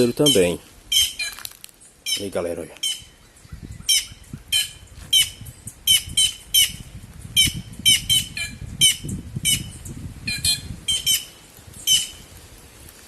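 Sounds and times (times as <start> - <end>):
jays harsh alarm calls: 0.0 - 1.4, 2.0 - 3.2, 3.8 - 6.8, 7.4 - 12.2.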